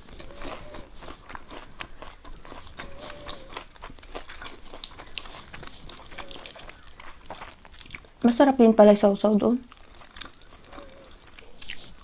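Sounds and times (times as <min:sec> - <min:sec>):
wet chewing mouth sounds: 0:00.0 - 0:08.6, 0:09.6 - 0:12.0.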